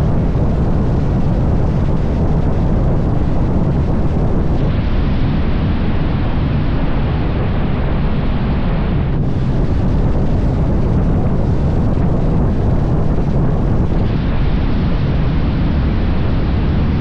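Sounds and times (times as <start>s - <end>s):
motorcycle engine running: 0.0s - 4.7s, 9.2s - 14.4s
wind rushing over microphone: 0.0s - 17.0s.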